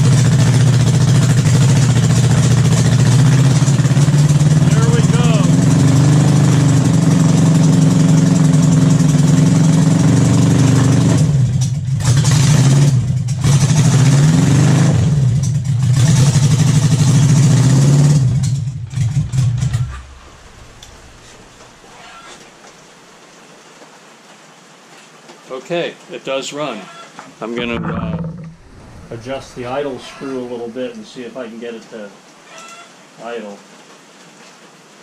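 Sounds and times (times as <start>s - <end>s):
motorcycle engine sputtering: 0.0s - 21.9s, 27.6s - 30.7s.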